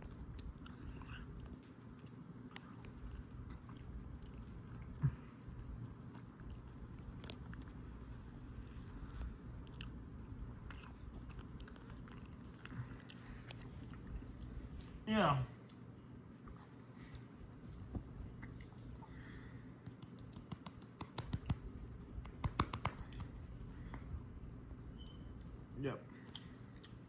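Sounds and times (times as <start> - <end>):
person chewing: 0.0 - 15.0, 17.6 - 20.5, 26.2 - 27.0
low steady hum: 0.0 - 27.0.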